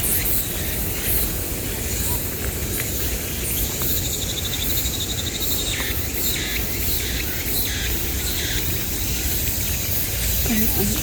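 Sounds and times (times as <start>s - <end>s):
crickets and cicadas chorus: 0.0s - 11.0s
rapid insect trill: 3.0s - 11.0s.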